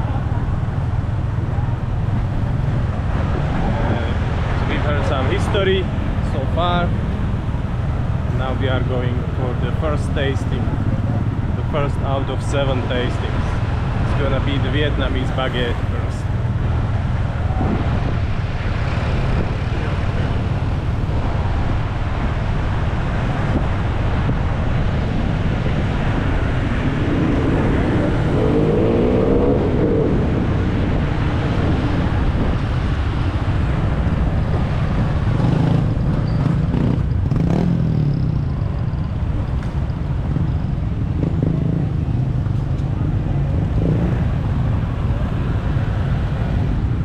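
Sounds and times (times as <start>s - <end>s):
traffic engines and road noise: 0.0s - 47.0s
passing engine gliding in pitch: 24.6s - 39.2s.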